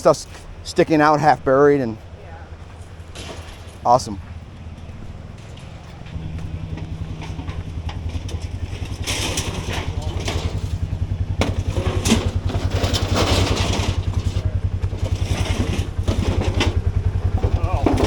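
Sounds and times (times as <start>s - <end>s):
diesel engine throbbing: 0.0s - 18.0s
debris knocking and scraping: 2.6s - 18.0s.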